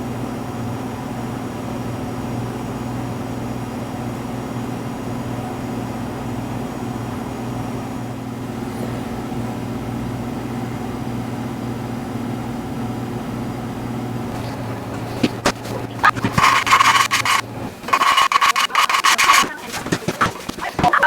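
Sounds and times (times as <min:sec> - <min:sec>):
low machine hum: 0:14.2 - 0:21.0.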